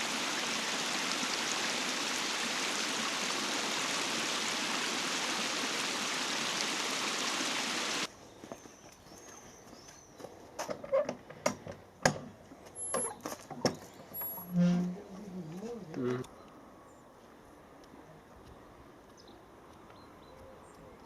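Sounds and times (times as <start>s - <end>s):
flowing water rushing: 0.0s - 8.1s.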